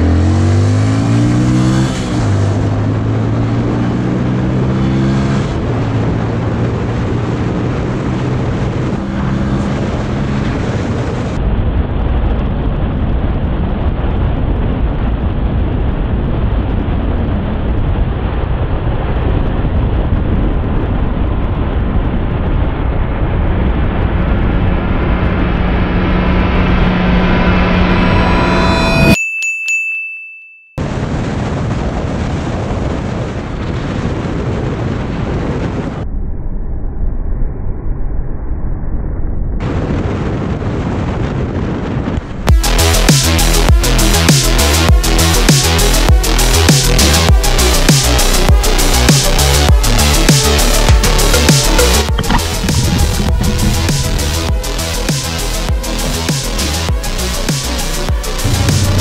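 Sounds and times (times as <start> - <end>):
motorcycle engine accelerating: 0.0 - 29.2, 42.4 - 59.0
wind noise on microphone: 0.0 - 29.2, 30.8 - 59.0.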